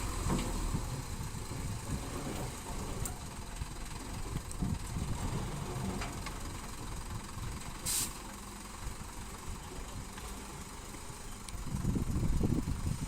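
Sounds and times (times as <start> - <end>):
diesel engine idling: 0.0 - 13.0
air hiss: 7.8 - 8.2.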